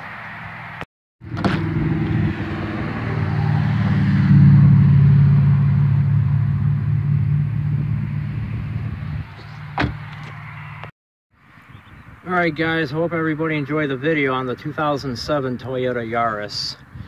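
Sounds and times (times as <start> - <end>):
car engine droning: 0.2 - 10.9.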